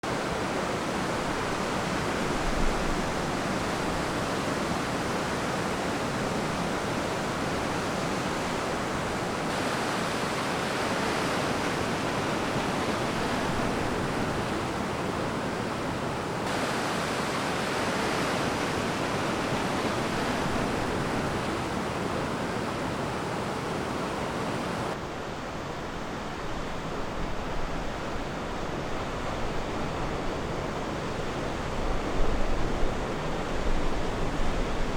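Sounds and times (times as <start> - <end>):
ocean waves washing on beach: 0.0 - 34.9.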